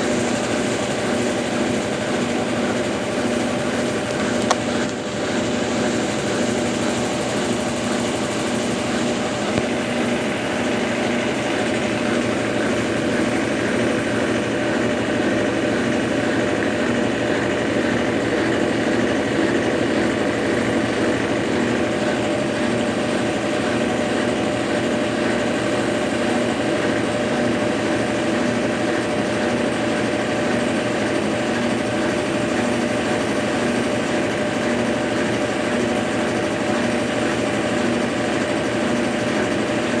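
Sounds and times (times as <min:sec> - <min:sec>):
washing machine motor hum: 0:00.0 - 0:40.0.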